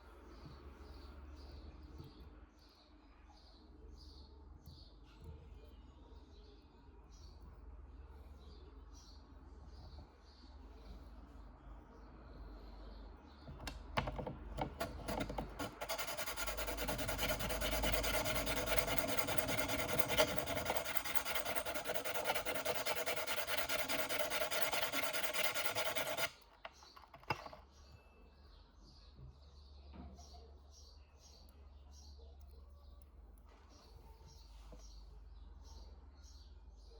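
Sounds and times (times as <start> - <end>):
sharpening stone rasping on metal: 14.6 - 27.6.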